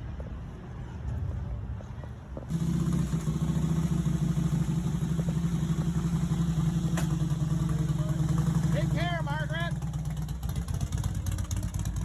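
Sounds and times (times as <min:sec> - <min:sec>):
motorcycle engine idling: 0:02.5 - 0:12.0.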